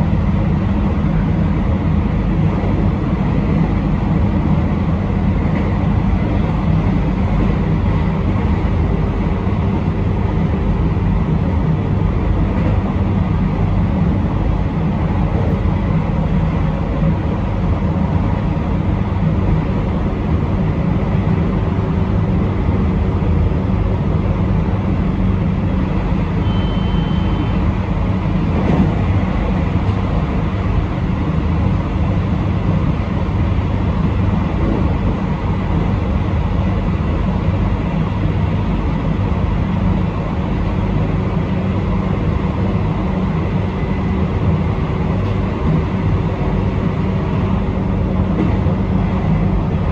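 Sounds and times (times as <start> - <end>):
train wheels rumbling: 0.0 - 49.9.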